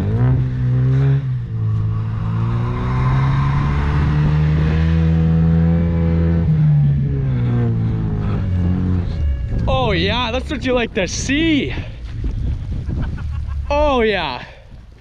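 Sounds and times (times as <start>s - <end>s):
car engine revving hard: 0.0s - 9.1s.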